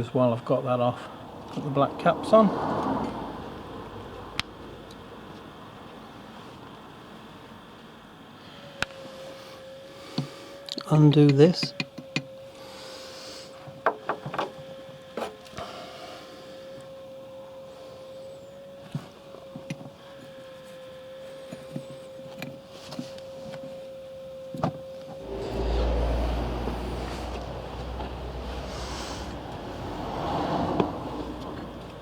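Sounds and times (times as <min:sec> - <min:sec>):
low rumble: 0:25.2 - 0:29.4.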